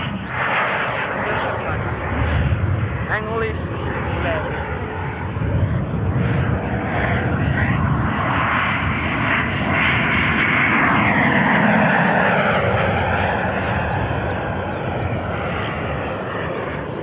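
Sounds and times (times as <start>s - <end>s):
model jet rushing past: 0.0s - 17.0s.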